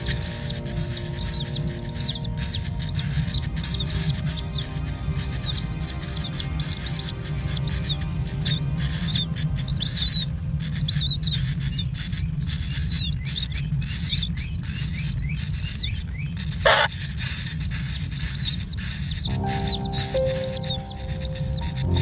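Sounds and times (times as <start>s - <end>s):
bird chicks chirping: 0.0s - 22.0s
rising sweep: 19.3s - 22.0s.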